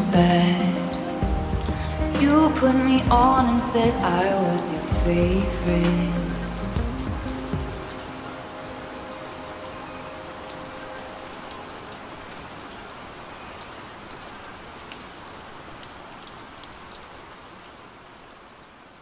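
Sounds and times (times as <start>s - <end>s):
steady rain falling: 0.0s - 19.0s
sharp raindrop ticks: 1.2s - 4.2s.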